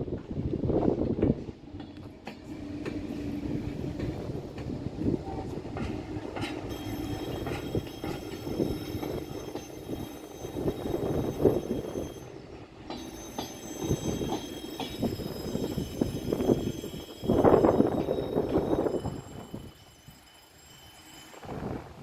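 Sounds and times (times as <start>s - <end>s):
train rumbling on tracks: 0.0s - 22.0s
high-pitched steady whine: 6.7s - 12.2s.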